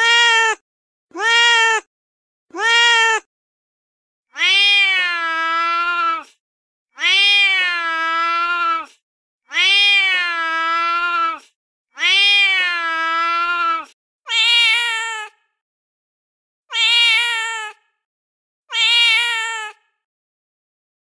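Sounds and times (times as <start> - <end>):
cat meowing: 4.4 - 6.2, 7.0 - 8.9, 9.5 - 11.4, 12.0 - 15.3, 16.7 - 17.8, 18.7 - 19.8.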